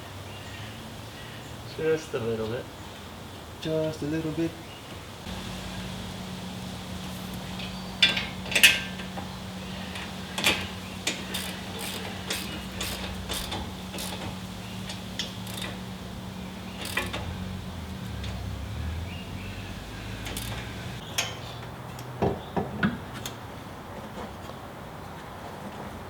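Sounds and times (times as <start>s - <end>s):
metallic clicks of hand tools: 10.0s - 15.8s, 16.8s - 17.2s, 20.2s - 20.6s.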